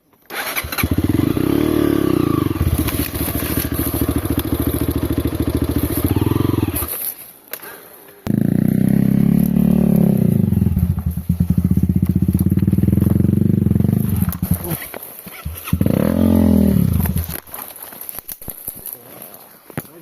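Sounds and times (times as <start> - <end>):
motorcycle engine running hard: 0.7 - 6.9, 8.3 - 14.8, 15.4 - 17.3.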